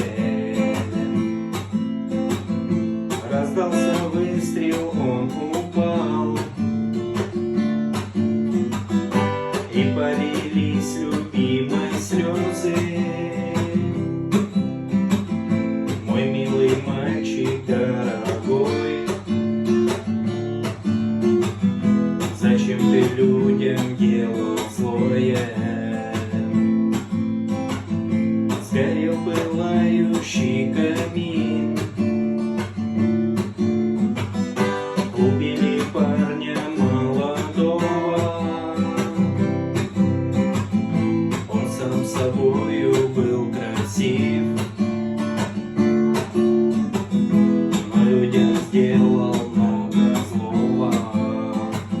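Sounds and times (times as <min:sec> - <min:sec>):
acoustic guitar strumming: 0:00.0 - 0:52.0.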